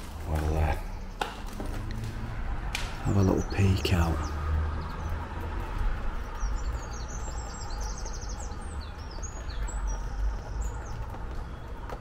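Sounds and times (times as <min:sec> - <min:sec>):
small birds chirping: 0:00.0 - 0:12.0
bird trill: 0:06.3 - 0:11.9.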